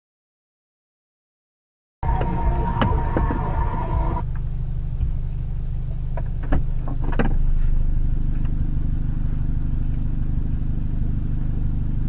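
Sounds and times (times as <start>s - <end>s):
vehicle engine humming: 2.0s - 12.0s.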